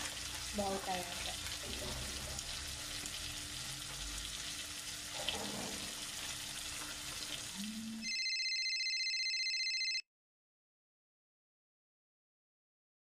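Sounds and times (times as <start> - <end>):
food sizzling in a pan: 0.0 - 8.0
phone ringtone: 8.0 - 10.0.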